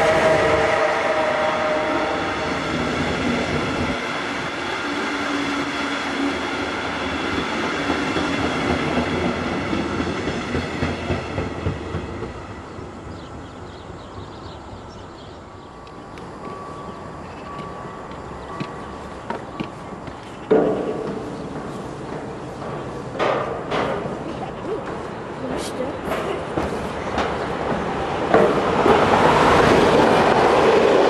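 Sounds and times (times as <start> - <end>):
train wheels clacking over rail joints: 15.9 - 31.0.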